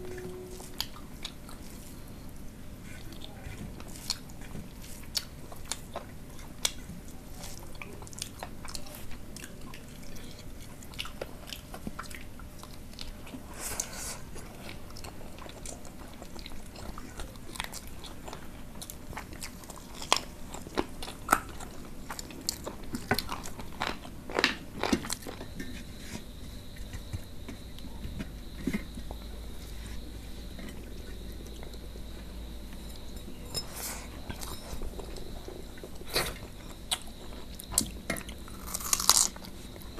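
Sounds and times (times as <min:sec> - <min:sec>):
people chewing and mouth sounds: 0:00.0 - 0:39.9.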